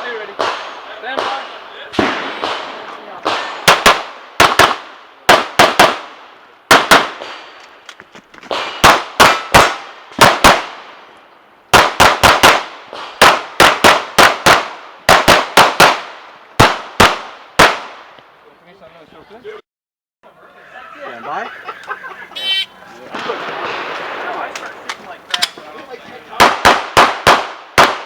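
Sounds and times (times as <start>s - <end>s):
pistol shots: 0.4s - 7.4s, 8.5s - 10.8s, 11.7s - 18.0s, 26.4s - 28.0s.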